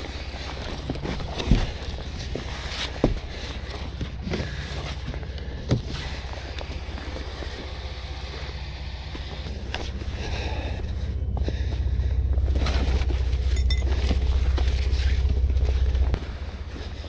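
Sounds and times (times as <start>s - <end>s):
vehicle engine idling: 0.0s - 17.0s
dull knocks: 1.2s - 5.9s.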